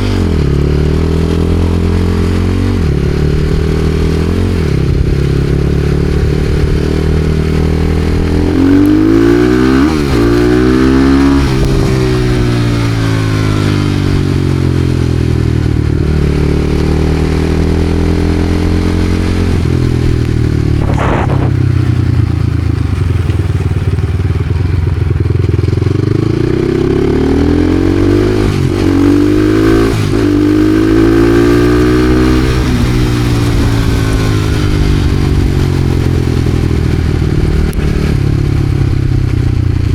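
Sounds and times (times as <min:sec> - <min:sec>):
motorcycle engine revving: 0:00.0 - 0:39.9
brief sharp sound: 0:20.8 - 0:22.0.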